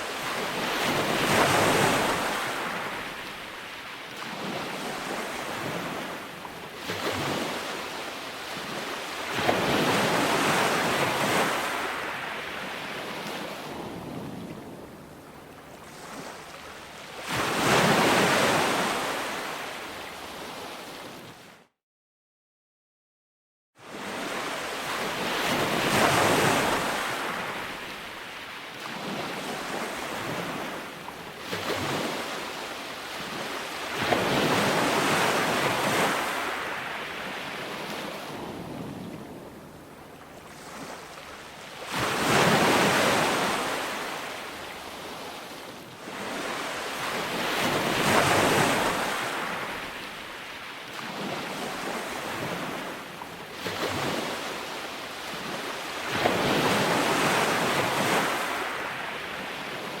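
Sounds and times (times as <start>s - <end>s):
ocean surf breaking: 0.0s - 6.2s, 31.5s - 45.4s, 46.1s - 53.1s.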